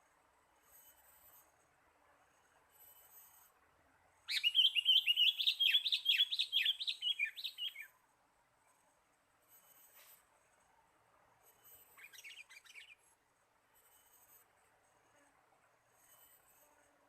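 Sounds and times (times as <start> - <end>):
bulbul singing: 4.3 - 7.9.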